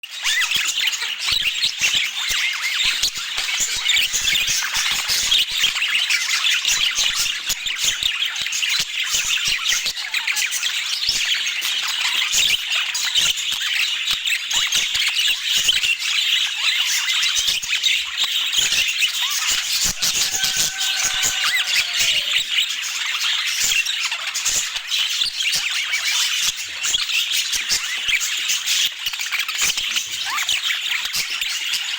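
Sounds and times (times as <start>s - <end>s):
budgerigars chattering: 0.3s - 31.9s.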